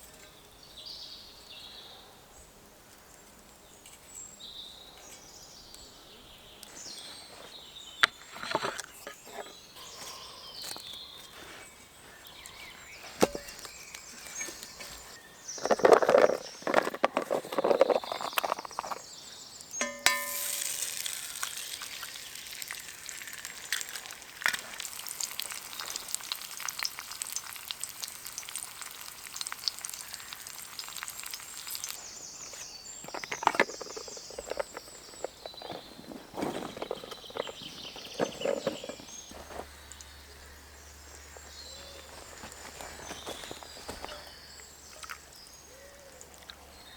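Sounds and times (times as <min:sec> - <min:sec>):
metallic knock: 0:19.8 - 0:20.9
pan and utensils clattering: 0:19.8 - 0:21.5
food sizzling in a pan: 0:19.8 - 0:32.1.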